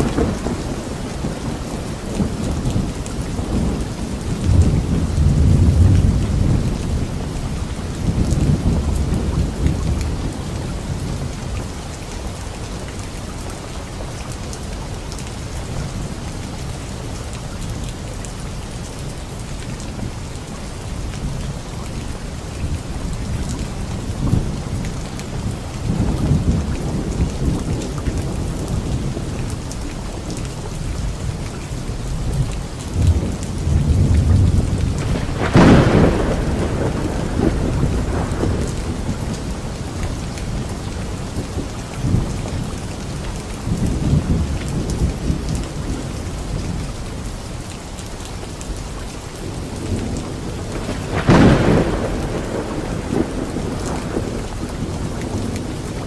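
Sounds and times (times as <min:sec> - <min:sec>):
sharp thunderclaps: 0:00.0 - 0:07.3, 0:33.0 - 0:42.6, 0:49.5 - 0:56.0
rolling thunder: 0:00.0 - 0:11.7, 0:30.9 - 0:47.3, 0:49.4 - 0:56.0
heavy rain: 0:00.0 - 0:56.0.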